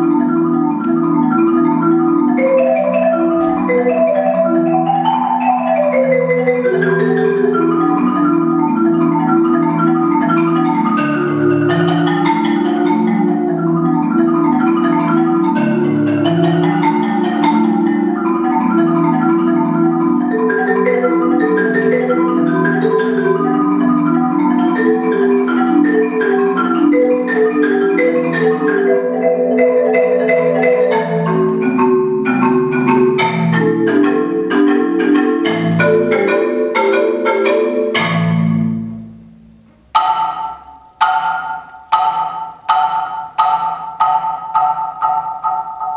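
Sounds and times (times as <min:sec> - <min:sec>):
marimba played with mallets: 0:00.0 - 0:45.9.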